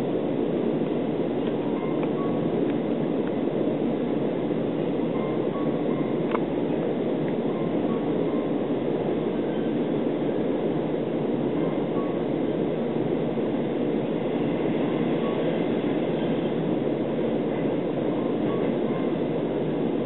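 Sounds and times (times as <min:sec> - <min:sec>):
train coach rumbling on rails: 0:00.0 - 0:20.0.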